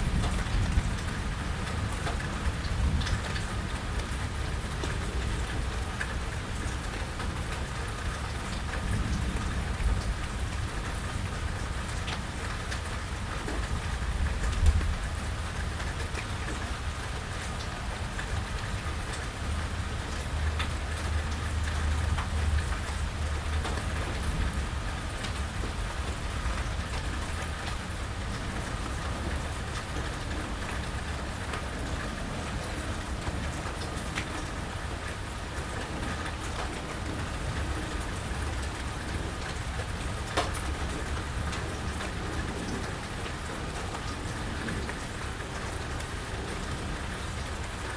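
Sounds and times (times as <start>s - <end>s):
steady rain falling: 0.0s - 47.9s
sharp water drips: 15.6s - 43.4s.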